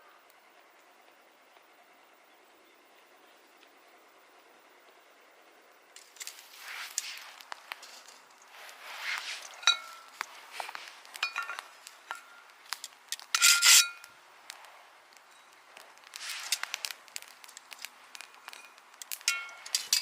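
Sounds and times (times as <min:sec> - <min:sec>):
camp gear rubbing and scraping: 0:06.0 - 0:12.4, 0:13.3 - 0:14.0, 0:16.1 - 0:16.9
ringing metallic clinks: 0:09.6 - 0:10.2, 0:18.5 - 0:20.0.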